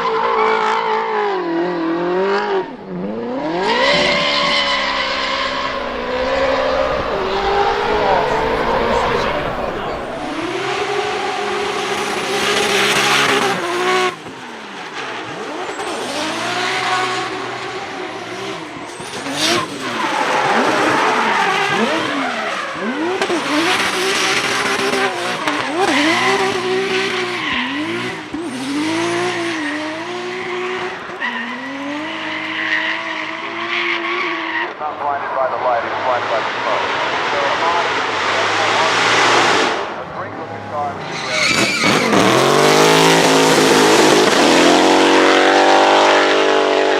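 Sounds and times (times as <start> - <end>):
car engine revving hard: 0.0 - 34.5, 36.2 - 46.9
tyres squealing: 41.0 - 44.2.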